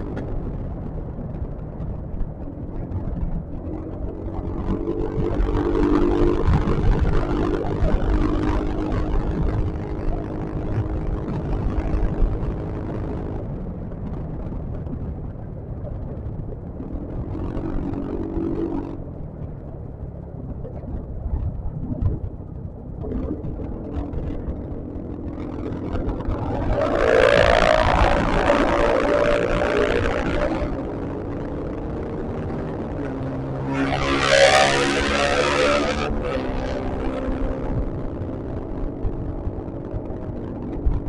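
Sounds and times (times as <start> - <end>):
wind rushing over microphone: 0.0 - 41.0
scooter engine running: 1.7 - 13.2.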